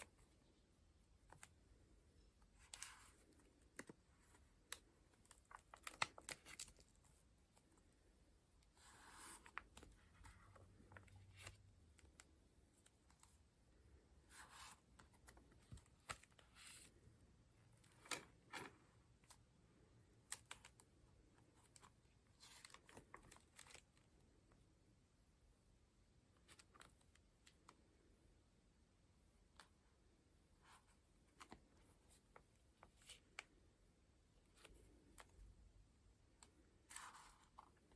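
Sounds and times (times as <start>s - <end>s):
paper pages rustling: 2.5s - 7.9s, 36.4s - 37.9s.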